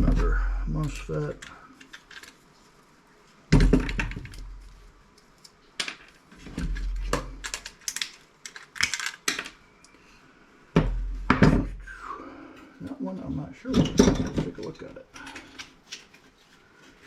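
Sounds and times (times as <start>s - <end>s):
small parts being handled: 1.1s - 2.9s, 3.7s - 9.6s.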